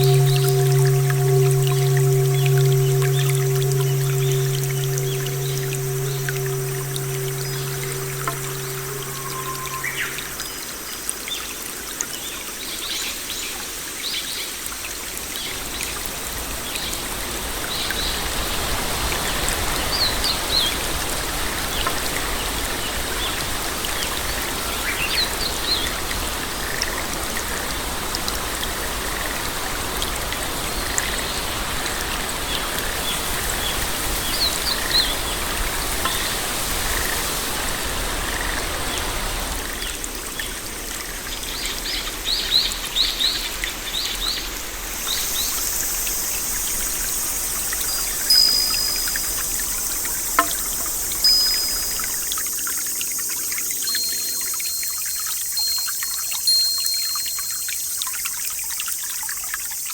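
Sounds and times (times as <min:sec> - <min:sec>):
short high chirps: 0:00.0 - 0:10.4
low rumble: 0:00.0 - 0:10.5
water trickling and pouring: 0:00.0 - 0:13.4, 0:14.0 - 0:59.9.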